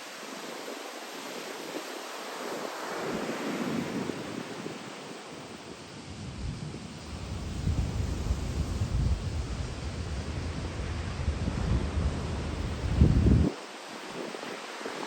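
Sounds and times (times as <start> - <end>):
wind: 0.0 - 15.0
wind buffeting on microphone: 6.1 - 14.4.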